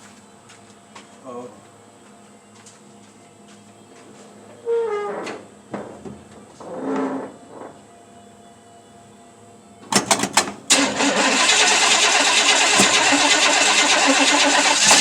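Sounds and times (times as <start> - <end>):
engine running loud: 10.7 - 15.0
starter motor cranking: 10.7 - 15.0.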